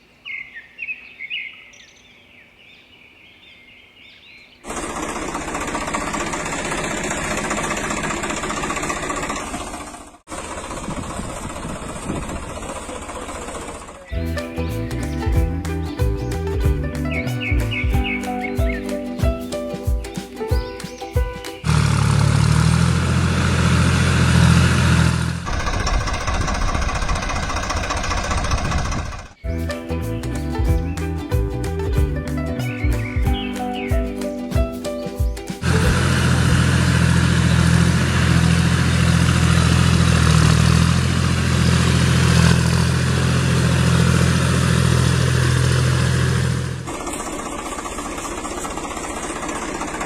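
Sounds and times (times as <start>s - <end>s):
tractor engine chugging: 4.7s - 18.8s, 21.6s - 29.5s, 35.3s - 50.0s.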